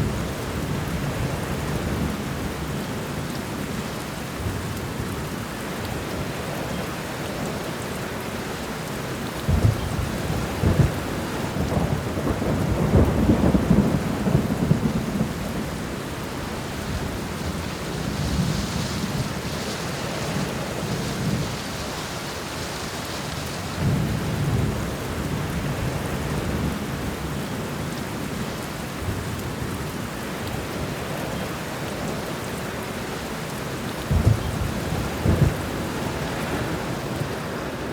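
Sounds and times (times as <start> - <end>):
steady rain falling: 0.0 - 37.9
thunder rumbling and cracking: 9.4 - 19.6, 34.0 - 37.9.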